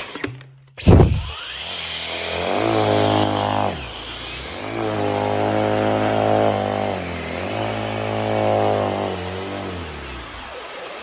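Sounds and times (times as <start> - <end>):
cordless vacuum motor: 0.0 - 11.0.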